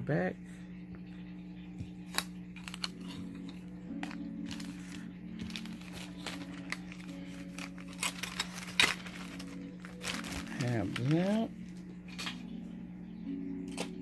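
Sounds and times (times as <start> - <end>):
steady low hum: 0.0 - 14.0
packaging crinkling: 2.1 - 11.9.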